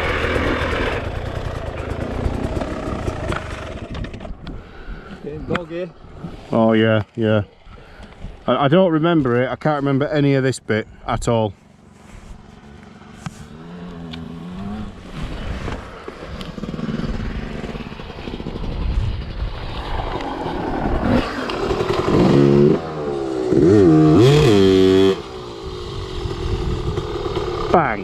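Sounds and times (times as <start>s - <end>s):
motorcycle engine revving: 0.0s - 4.4s, 12.3s - 28.0s.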